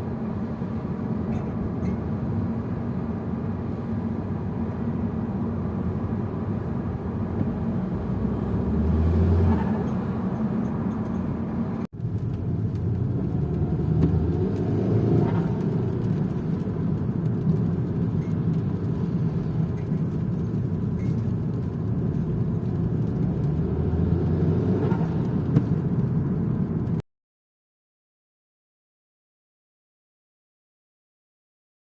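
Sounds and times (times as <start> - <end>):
turbocharged car engine accelerating: 7.2 - 10.8, 11.7 - 27.0.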